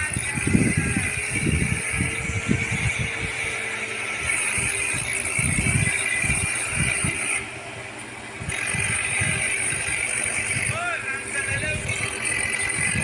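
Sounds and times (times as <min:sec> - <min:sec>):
rattling: 0:00.0 - 0:13.0
tractor engine running: 0:00.0 - 0:13.0.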